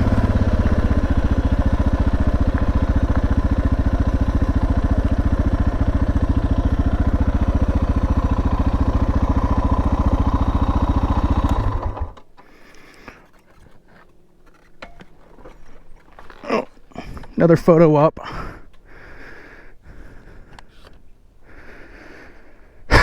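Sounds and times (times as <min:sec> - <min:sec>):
motorcycle engine idling: 0:00.0 - 0:17.8.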